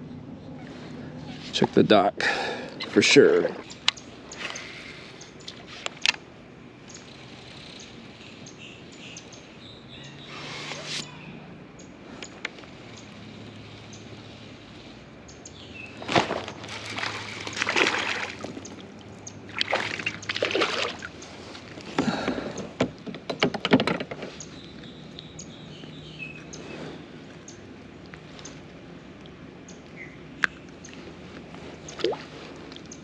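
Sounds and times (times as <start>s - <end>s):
kayak paddle splashing: 16.0s - 22.3s.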